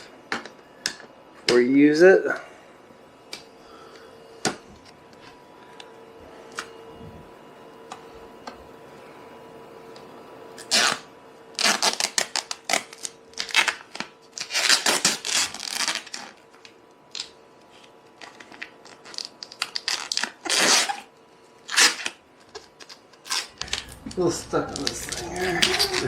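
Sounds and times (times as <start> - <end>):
plastic film being peeled off: 10.6 - 26.0.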